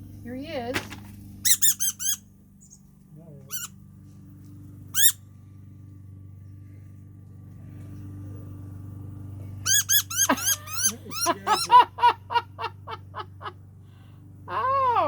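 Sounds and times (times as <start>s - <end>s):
steady low hum: 0.0s - 15.0s
young thrush squeaky distress calls: 1.5s - 2.8s, 3.5s - 3.7s, 5.0s - 5.2s, 9.7s - 11.7s.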